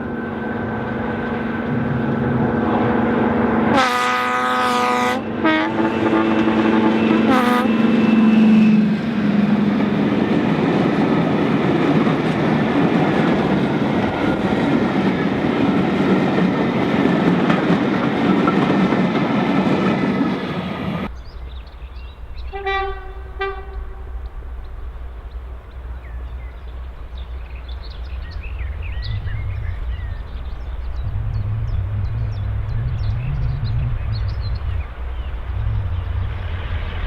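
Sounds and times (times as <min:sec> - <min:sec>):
train rumbling past: 0:00.0 - 0:37.0
locomotive horn: 0:01.6 - 0:09.4, 0:22.5 - 0:24.2
short high horn toots: 0:03.7 - 0:09.0.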